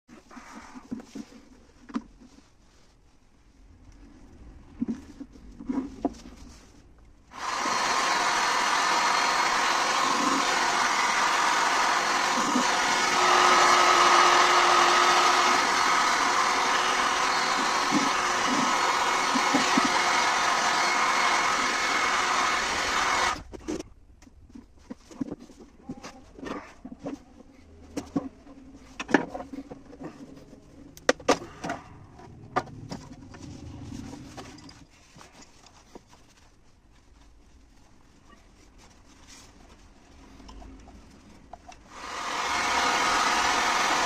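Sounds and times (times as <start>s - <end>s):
machine motor whirring: 7.4s - 23.4s, 41.9s - 44.0s.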